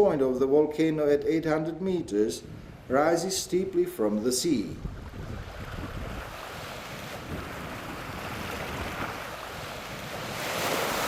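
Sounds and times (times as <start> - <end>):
wind on microphone: 2.4 - 2.9, 4.5 - 11.0
sea waves and surf washing: 2.4 - 3.2, 4.0 - 11.0.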